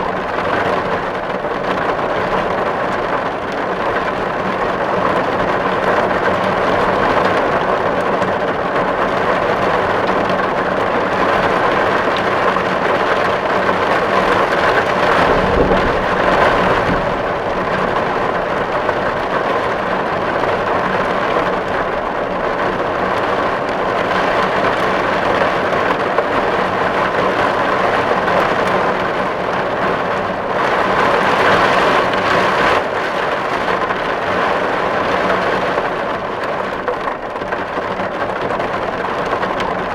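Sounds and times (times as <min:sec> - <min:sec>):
heavy rain on a tin roof: 0:00.0 - 0:39.9
low rumble: 0:14.6 - 0:19.9.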